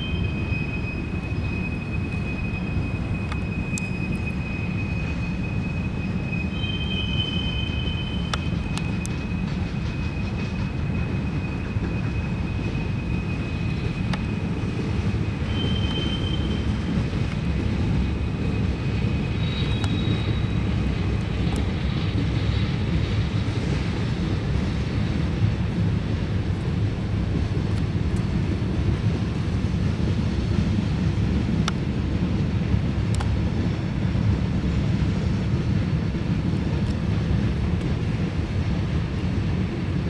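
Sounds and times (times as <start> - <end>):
high wheel squeal: 0.0 - 22.8
train rumbling on rails: 0.0 - 40.0.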